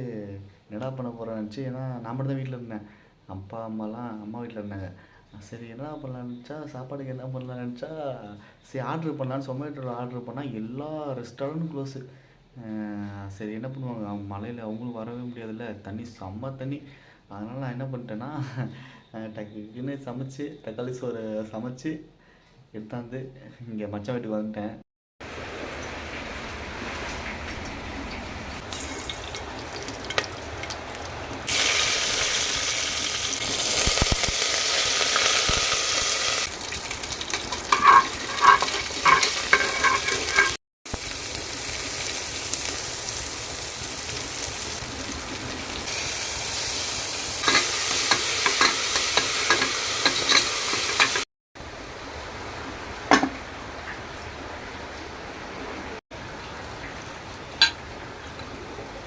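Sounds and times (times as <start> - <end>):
food sizzling in a pan: 28.6 - 51.3
spoon clinking on metal pot: 37.5 - 40.6, 47.4 - 51.2.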